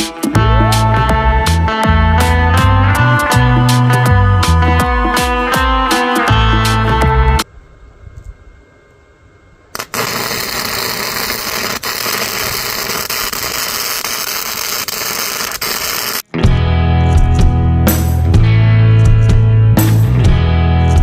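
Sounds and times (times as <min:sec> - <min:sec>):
welding arc sizzling: 0:09.7 - 0:16.3.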